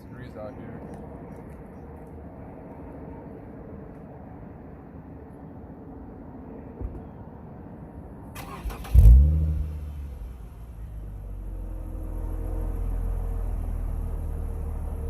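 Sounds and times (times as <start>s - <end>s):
car engine starting and idling: 8.3s - 15.0s.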